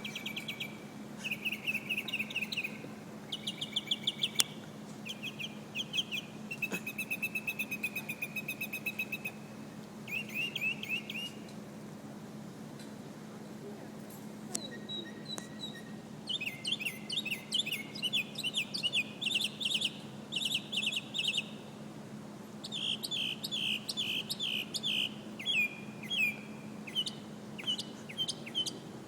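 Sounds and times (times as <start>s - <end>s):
mockingbird singing: 0.0s - 11.5s, 14.6s - 21.7s, 22.6s - 28.9s.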